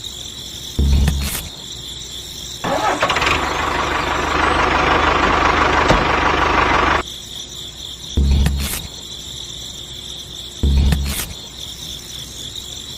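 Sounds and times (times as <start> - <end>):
motor running with low rumble: 0.8 - 1.3, 3.4 - 7.0, 8.2 - 8.7, 10.6 - 11.2.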